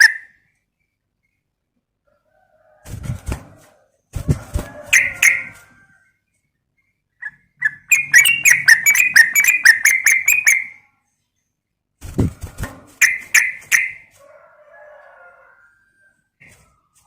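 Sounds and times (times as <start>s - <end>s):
bird chirping: 6.3s - 11.7s, 13.0s - 14.1s.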